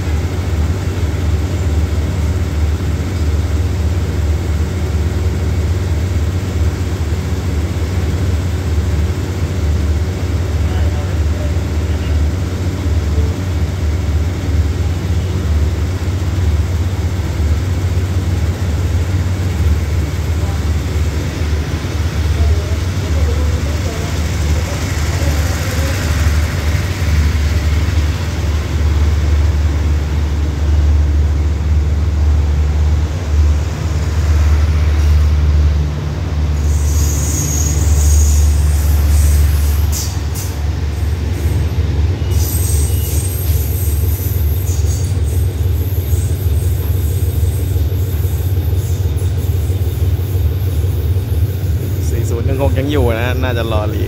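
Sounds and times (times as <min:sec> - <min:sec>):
train wheels rumbling on track: 0:00.0 - 0:54.0
high-pitched wheel squeals: 0:36.6 - 0:40.2, 0:42.2 - 0:47.8.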